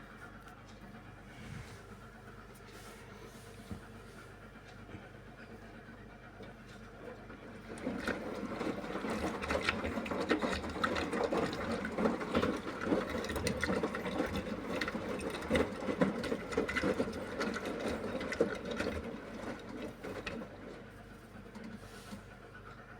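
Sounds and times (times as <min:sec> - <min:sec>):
washing machine drum churning: 0:06.9 - 0:21.9.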